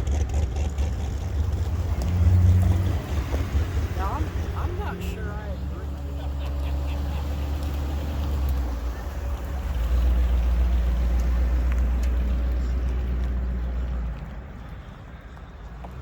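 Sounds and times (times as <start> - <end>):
car engine passing by: 0.0 - 16.0.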